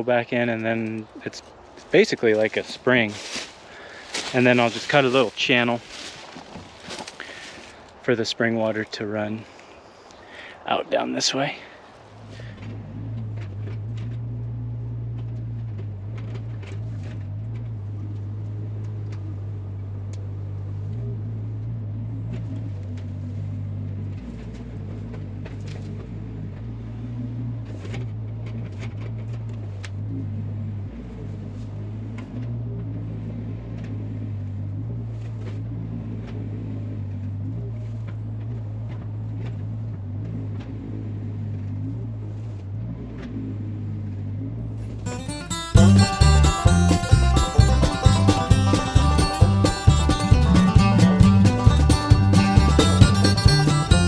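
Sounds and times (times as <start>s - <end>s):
excavator engine running: 0.0s - 9.3s, 44.5s - 54.0s.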